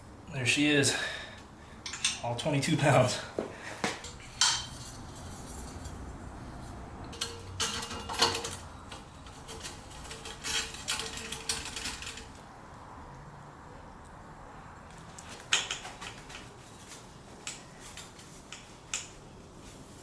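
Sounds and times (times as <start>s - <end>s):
metal tools clinking and clanking: 1.8s - 3.0s, 4.0s - 6.0s, 7.1s - 12.4s.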